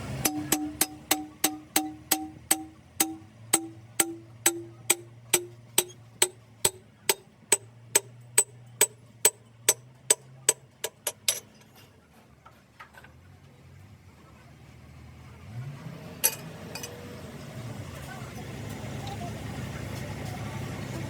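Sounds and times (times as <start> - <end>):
hammer striking metal: 0.0 - 11.7.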